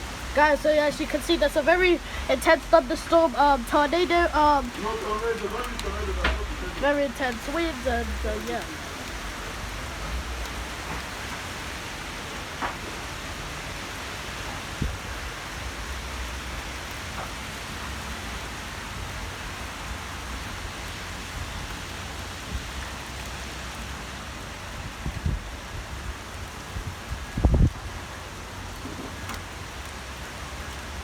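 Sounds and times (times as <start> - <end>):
heavy rain falling: 0.0 - 31.0
low rumble of wind: 0.0 - 31.0
faint taps: 5.7 - 6.5.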